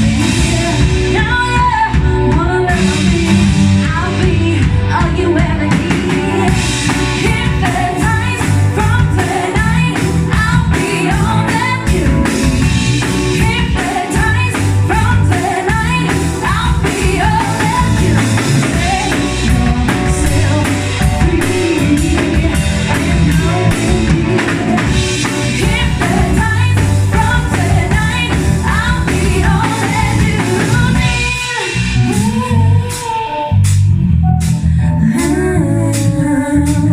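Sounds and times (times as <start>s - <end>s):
live rock band playing: 0.0s - 36.9s
person singing: 13.4s - 33.6s, 34.9s - 36.9s.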